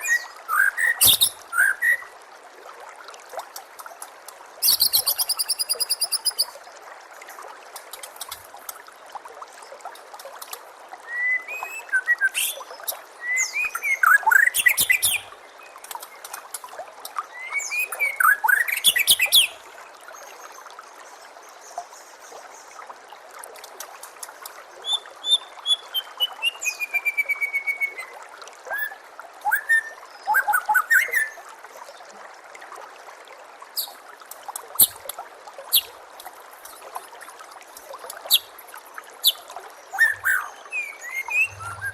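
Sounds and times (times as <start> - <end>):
bird singing whistles and trills: 0.0 - 2.1, 4.6 - 6.5, 11.1 - 15.3, 17.3 - 19.6, 24.8 - 28.1, 28.7 - 31.4, 39.2 - 41.9
water trickling: 0.0 - 41.9.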